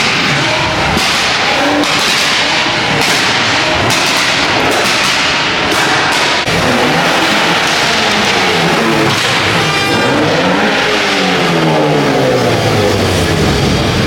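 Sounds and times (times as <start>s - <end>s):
sharp cracks: 0.0s - 10.6s
car engine revving: 0.0s - 14.0s.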